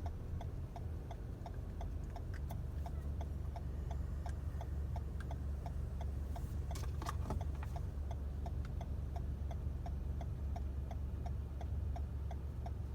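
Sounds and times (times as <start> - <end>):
low car engine hum: 0.0 - 12.9
turn signal ticking: 0.0 - 12.9.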